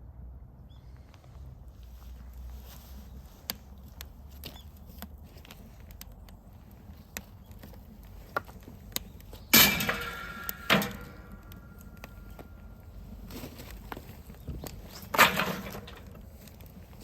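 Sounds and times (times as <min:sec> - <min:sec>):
metal parts clanking and ringing: 0:09.5 - 0:12.8.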